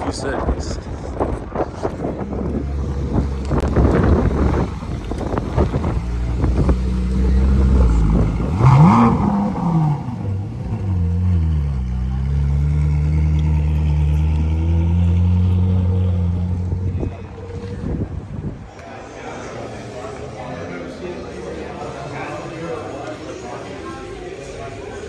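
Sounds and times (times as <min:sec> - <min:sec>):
car engine revving: 0:01.9 - 0:18.7.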